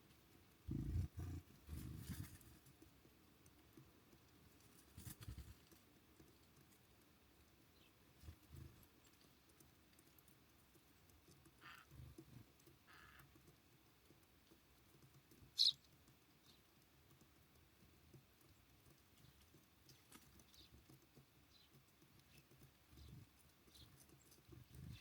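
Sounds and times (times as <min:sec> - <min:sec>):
soft pecking and landing taps: 0:00.0 - 0:25.0
faint high bird calls: 0:11.6 - 0:12.0, 0:12.8 - 0:13.3, 0:15.5 - 0:15.9
sharp bird chip: 0:15.6 - 0:15.8.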